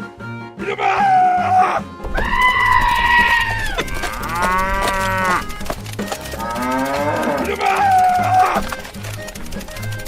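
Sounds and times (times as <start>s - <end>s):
cow mooing: 3.1s - 5.6s, 6.3s - 8.6s.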